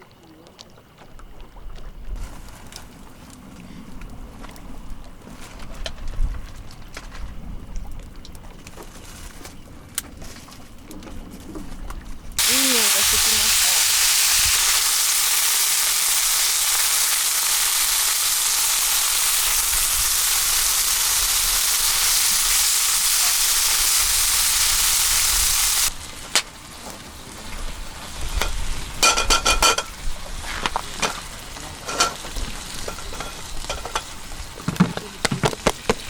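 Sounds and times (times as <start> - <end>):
food sizzling in a pan: 12.4 - 34.4
cooking utensils clicking and knocking: 28.4 - 30.0, 31.0 - 36.0.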